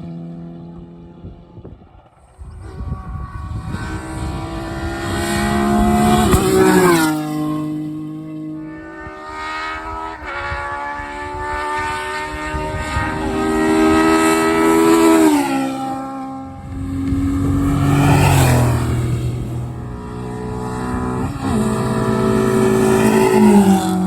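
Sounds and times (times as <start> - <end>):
rally car engine passing: 0.0 - 24.0.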